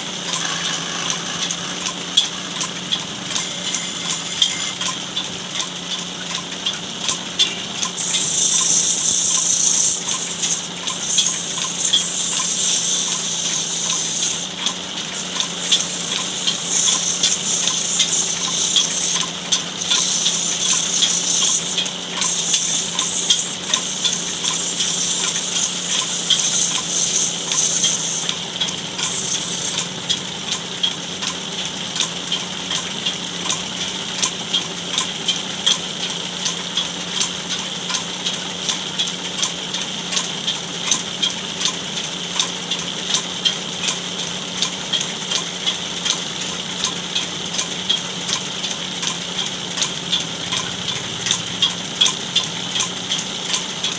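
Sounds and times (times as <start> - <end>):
chisel cutting wood hiss: 0.0 - 5.0, 7.8 - 30.3
wood lathe motor hum: 0.0 - 34.8
faint regular tick: 0.3 - 44.0.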